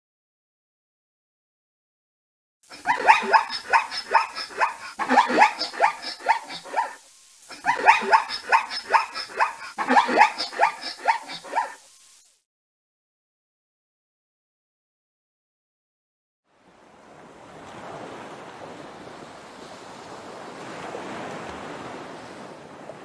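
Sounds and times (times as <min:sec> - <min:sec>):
zebra barking yelps: 0:02.7 - 0:11.8.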